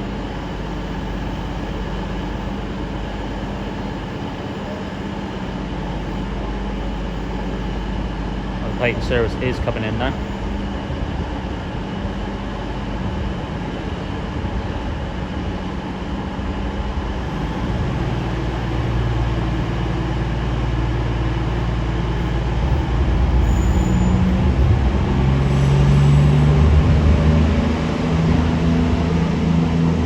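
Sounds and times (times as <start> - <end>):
diesel train engine rumble: 0.0 - 30.0
high squeal: 22.2 - 24.8, 25.4 - 26.5.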